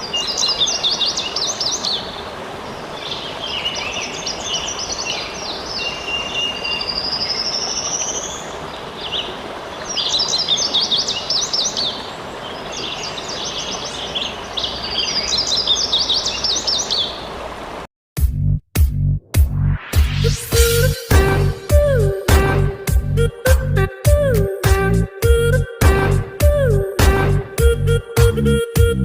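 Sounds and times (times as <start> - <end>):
running water: 0.0 - 17.9.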